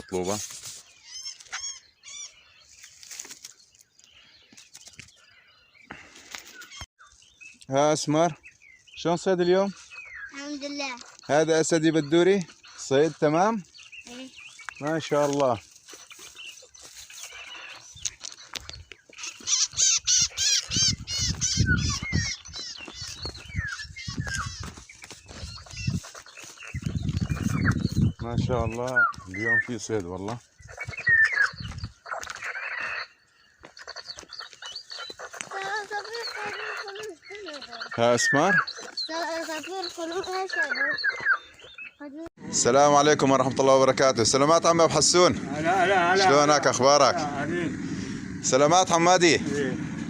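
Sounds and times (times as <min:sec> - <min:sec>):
high bird chirps: 0:00.0 - 0:42.3
low rumbling noise: 0:45.3 - 0:50.0.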